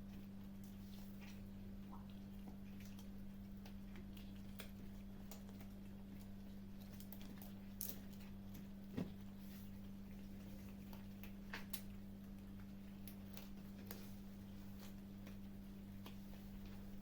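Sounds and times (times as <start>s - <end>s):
kittens crunching food: 0.0s - 17.0s
low electrical hum: 0.0s - 17.0s.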